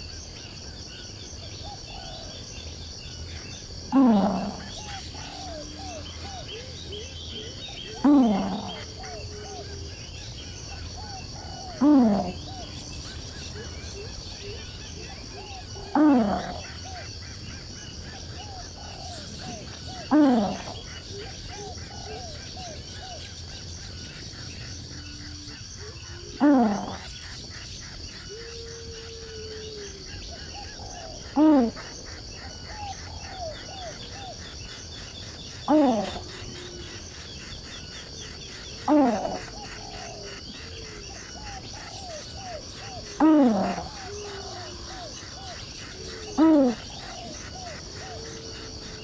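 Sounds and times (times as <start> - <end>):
insects buzzing: 0.0 - 49.0
low harsh animal calls: 3.8 - 9.9, 11.0 - 12.8, 15.2 - 17.1, 18.5 - 23.1, 24.9 - 27.4, 38.8 - 49.0.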